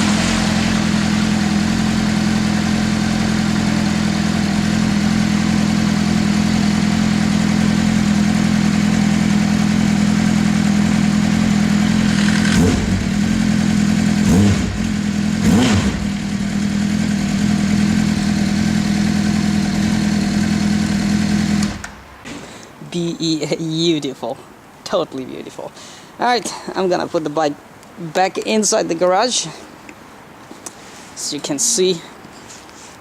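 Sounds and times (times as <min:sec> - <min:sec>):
motorcycle engine idling: 0:00.0 - 0:21.8
motorcycle throttle blips: 0:00.0 - 0:22.0.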